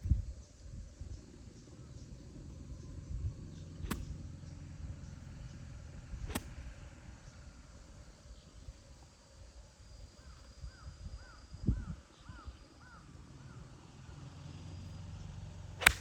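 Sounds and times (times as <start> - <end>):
wind rumble on microphone: 0.0 - 7.4, 8.4 - 13.5
golf club striking ball: 3.8 - 4.2, 6.2 - 6.6, 15.8 - 16.0.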